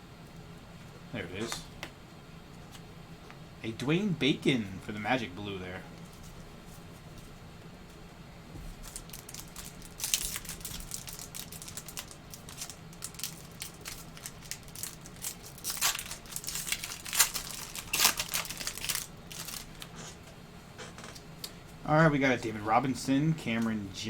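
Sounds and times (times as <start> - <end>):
card pack wrapper crinkling: 8.8 - 19.9.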